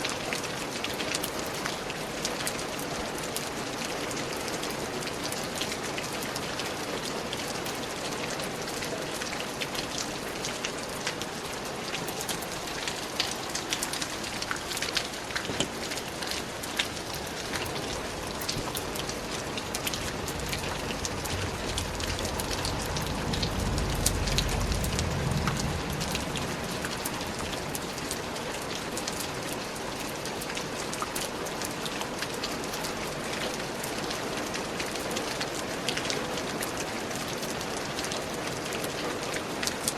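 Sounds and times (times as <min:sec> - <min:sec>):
steady rain falling: 0:00.0 - 0:39.9
low rumble: 0:18.0 - 0:28.3.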